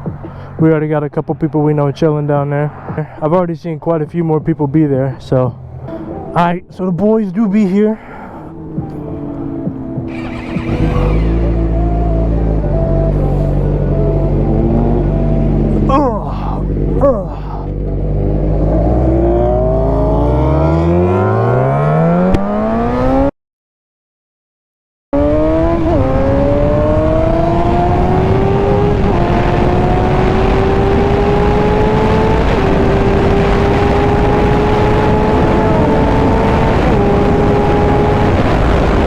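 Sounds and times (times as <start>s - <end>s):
motorcycle engine accelerating: 8.2s - 23.3s, 25.2s - 39.0s.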